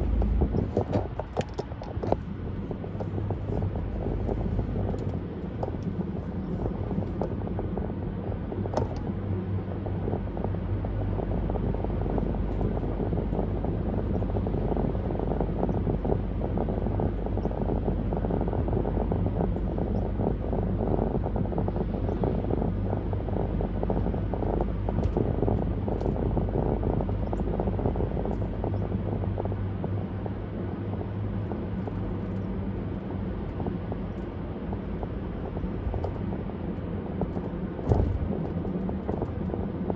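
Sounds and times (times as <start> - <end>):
tyre rumble: 0.0 - 7.2
low engine hum: 0.0 - 39.9.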